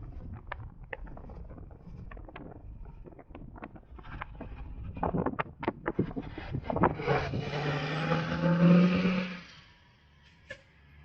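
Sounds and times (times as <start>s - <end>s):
wind on microphone: 0.0s - 8.8s
road rumble: 0.0s - 11.0s.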